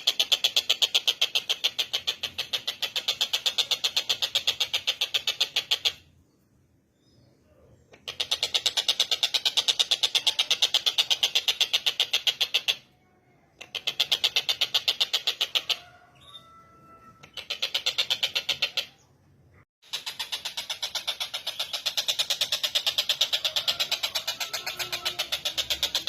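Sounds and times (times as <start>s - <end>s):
kingfisher chattering call: 20.0s - 26.0s.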